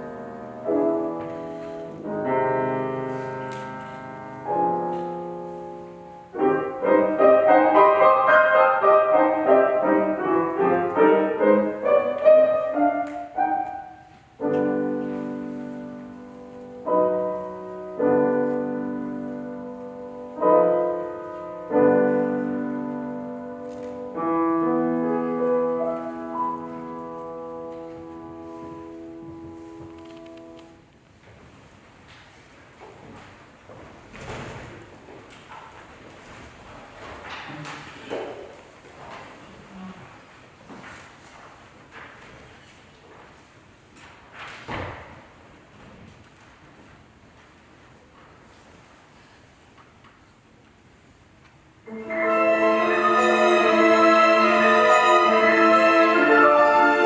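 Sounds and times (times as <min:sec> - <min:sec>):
piano playing: 0:00.0 - 0:31.1, 0:51.8 - 0:57.0.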